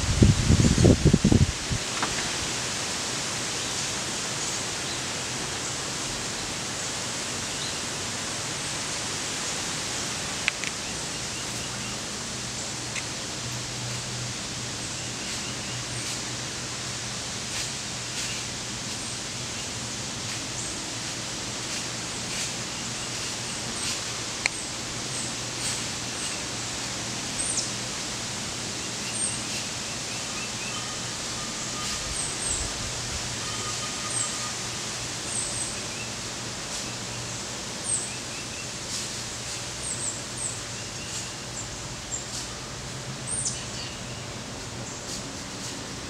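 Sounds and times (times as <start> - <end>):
outdoor hiss: 0.0 - 46.0.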